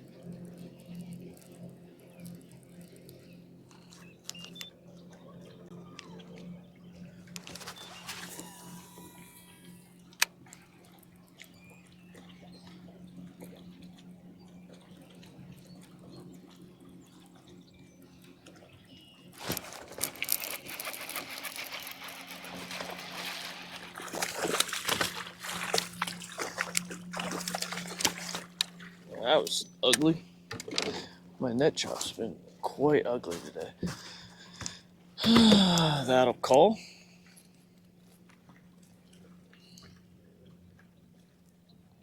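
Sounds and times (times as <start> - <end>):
steady low hum: 0.0 - 42.0
water splashing and sloshing: 10.1 - 36.2, 36.9 - 42.0.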